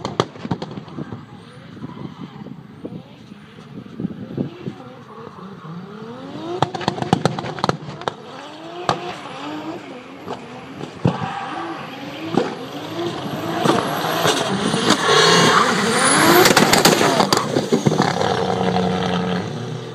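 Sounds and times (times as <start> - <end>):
car engine revving hard: 5.2 - 19.9
sharp exhaust pops: 6.6 - 8.2, 16.4 - 18.6.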